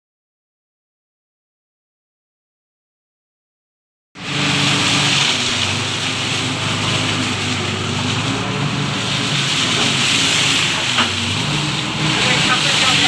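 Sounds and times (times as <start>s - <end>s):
truck engine running: 4.2s - 13.0s.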